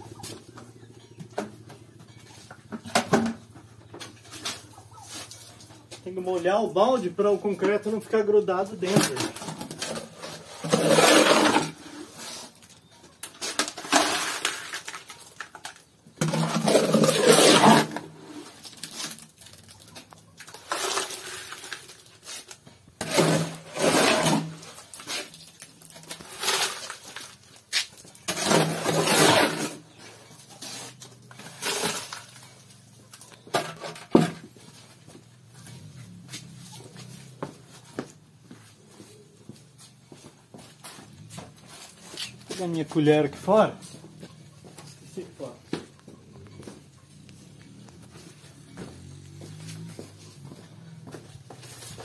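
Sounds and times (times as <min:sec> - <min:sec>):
gravelly concrete scooped and dumped: 0:04.2 - 0:37.4, 0:51.3 - 0:52.0.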